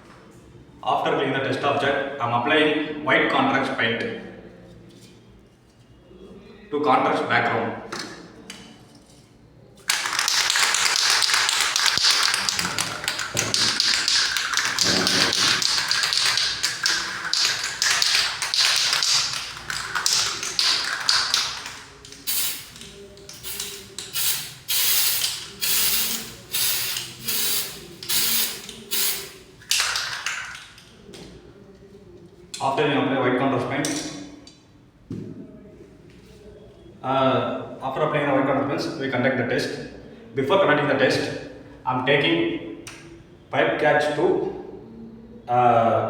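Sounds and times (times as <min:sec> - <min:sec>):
aerosol can spraying: 0:09.9 - 0:30.0.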